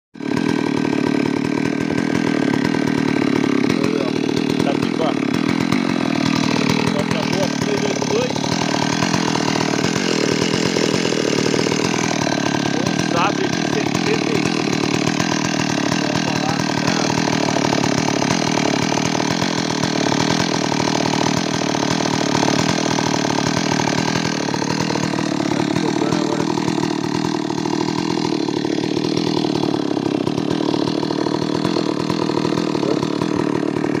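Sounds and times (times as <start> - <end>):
two-stroke chainsaw running: 0.2 - 34.0.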